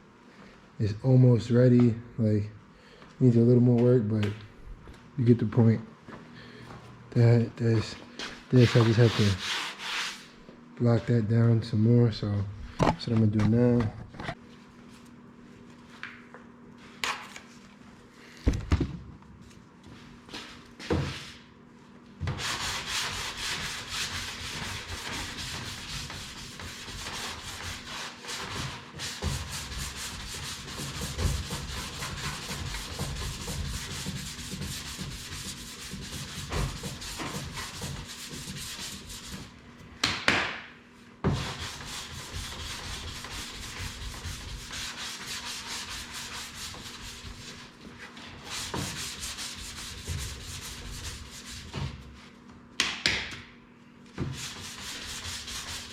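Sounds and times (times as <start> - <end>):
sanding block rubbing filler: 8.6 - 10.2, 22.4 - 39.4, 41.4 - 47.6, 48.4 - 51.7, 54.4 - 55.9.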